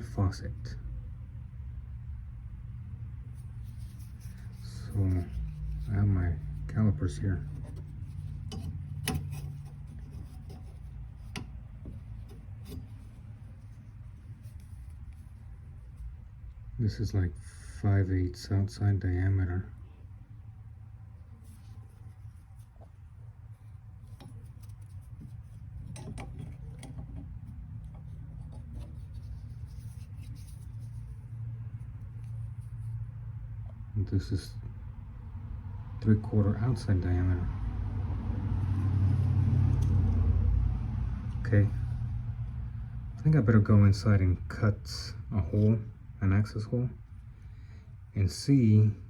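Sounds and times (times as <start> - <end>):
low steady hum: 0.0 - 49.0
calipers clicking and scraping: 3.5 - 15.3, 23.6 - 31.1.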